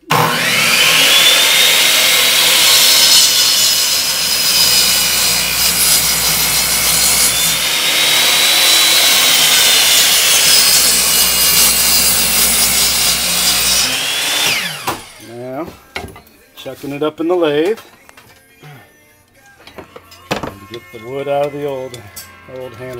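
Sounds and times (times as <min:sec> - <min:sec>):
power saw cutting wood: 0:00.0 - 0:15.7.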